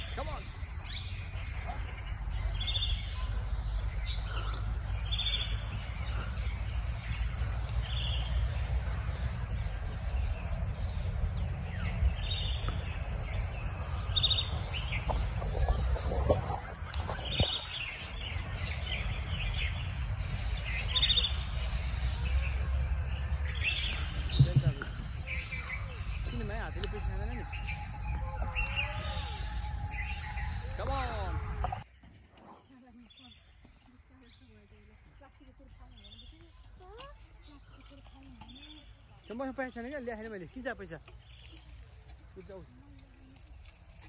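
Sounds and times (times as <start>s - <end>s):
low outdoor rumble: 0.0s - 31.9s.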